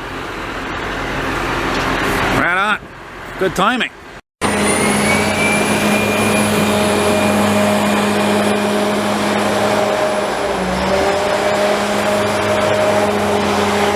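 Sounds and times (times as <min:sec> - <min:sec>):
heavy vehicle engine hum: 0:00.0 - 0:13.9
high whine: 0:04.4 - 0:13.9.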